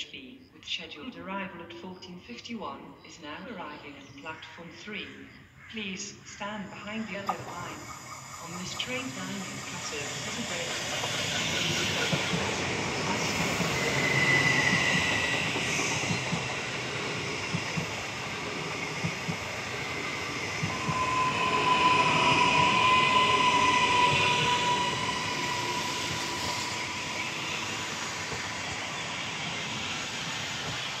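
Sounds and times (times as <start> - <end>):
train motor whine: 6.8 - 31.0.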